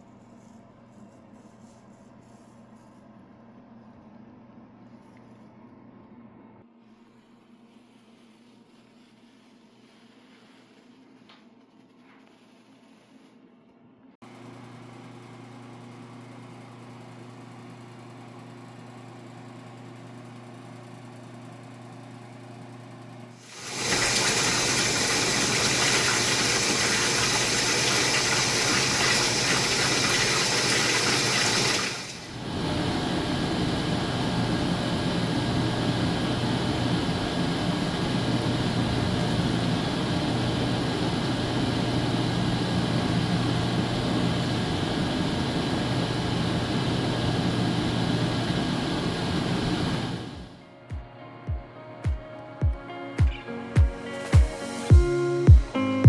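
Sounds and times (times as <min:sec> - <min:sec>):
water gushing into a tub: 0:23.4 - 0:33.3
low motor hum: 0:29.3 - 0:50.6.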